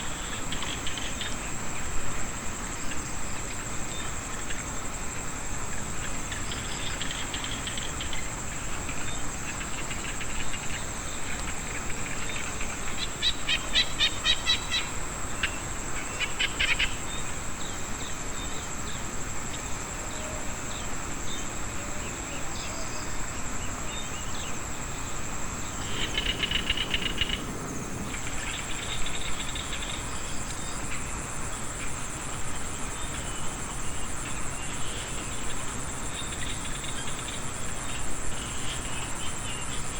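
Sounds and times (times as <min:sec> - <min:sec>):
high insect trill: 0:00.0 - 0:39.9
frogs fast pulsed calls: 0:06.0 - 0:17.4, 0:24.8 - 0:31.1.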